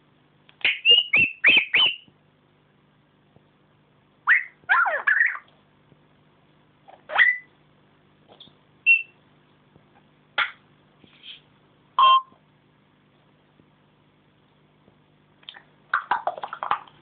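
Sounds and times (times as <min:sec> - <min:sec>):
parrot squawking and whistling: 0:00.6 - 0:02.1, 0:04.3 - 0:05.5, 0:06.9 - 0:07.5, 0:08.9 - 0:09.1.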